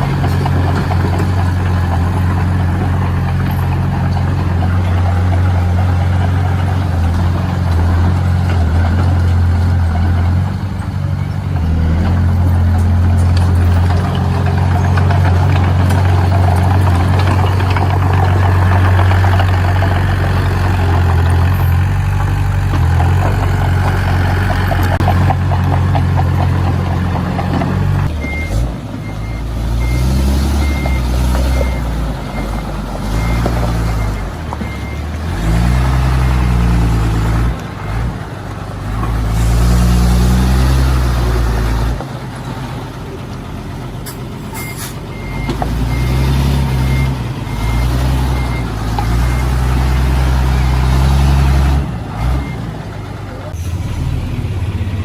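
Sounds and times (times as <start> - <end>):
heavy machinery diesel engine revving: 0.0 - 44.4, 45.0 - 55.0
reversing alarm beeping: 28.1 - 36.5, 44.5 - 50.8.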